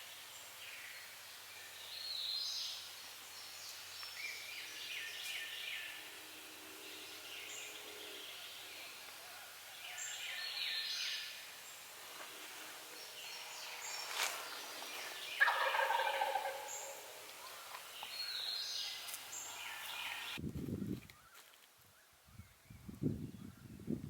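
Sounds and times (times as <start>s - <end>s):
songbirds singing: 0.0s - 24.0s
turkey gobbling: 15.4s - 17.6s.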